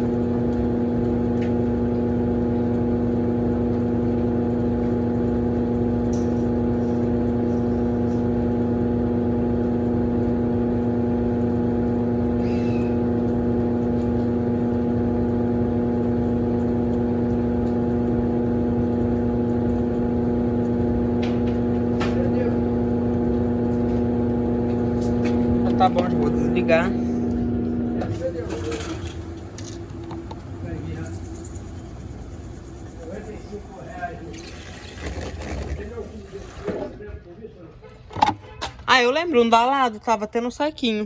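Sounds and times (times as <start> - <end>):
washing machine humming: 0.0 - 40.3.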